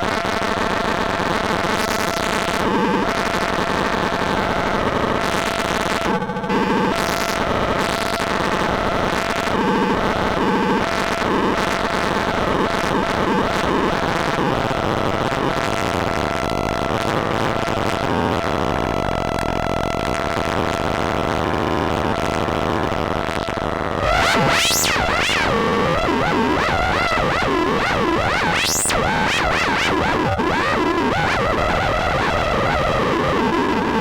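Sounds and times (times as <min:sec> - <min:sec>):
distorted synthesizer: 0:23.9 - 0:34.0.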